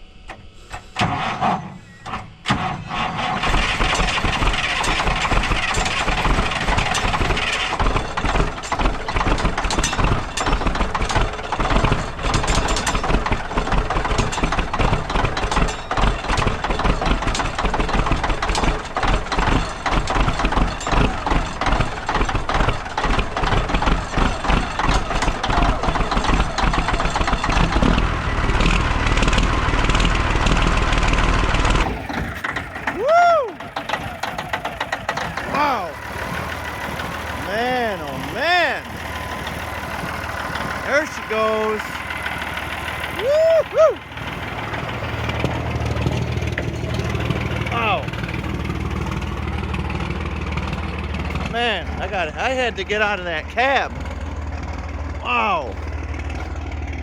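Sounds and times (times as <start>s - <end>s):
diesel engine cranking and starting: 0.0s - 57.0s.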